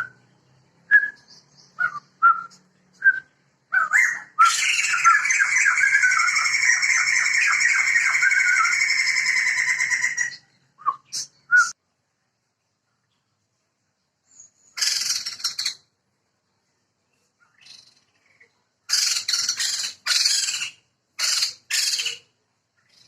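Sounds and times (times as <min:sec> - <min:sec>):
birds whistling short notes: 0:00.9 - 0:11.8
birds cackling laughing chorus: 0:03.8 - 0:10.4.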